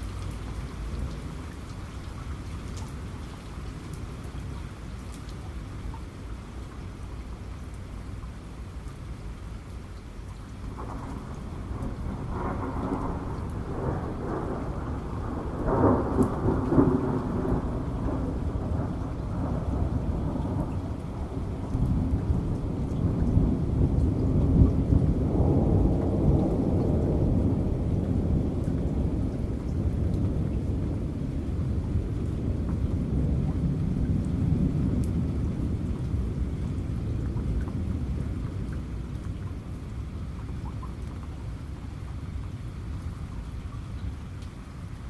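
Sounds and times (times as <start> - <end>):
heavy rain: 0.0 - 45.0
raindrops ticking: 0.0 - 45.0
rolling thunder: 10.7 - 39.2.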